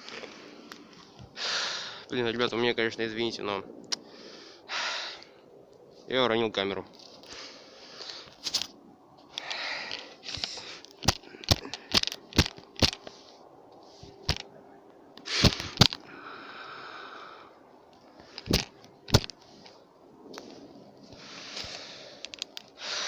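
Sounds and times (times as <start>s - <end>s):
camera handling knocks and clicks: 10.3s - 13.1s, 14.2s - 14.5s, 18.4s - 19.4s.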